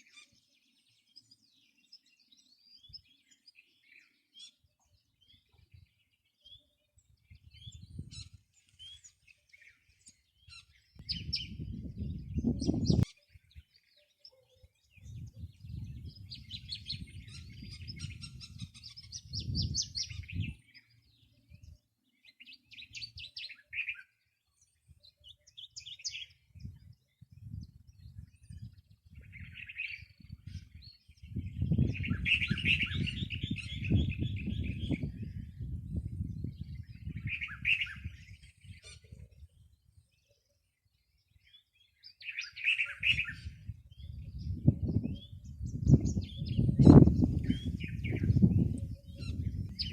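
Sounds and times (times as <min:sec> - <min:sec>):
wild birds chirping and singing: 0:00.0 - 0:49.9
low rumbling gusts: 0:31.2 - 0:37.3, 0:43.5 - 0:49.9.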